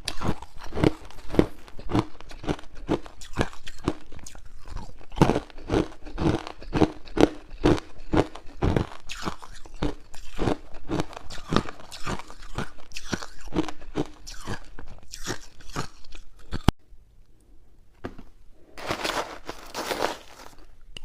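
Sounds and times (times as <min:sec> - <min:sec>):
ice cubes being chewed: 0:00.0 - 0:16.7, 0:18.8 - 0:20.8.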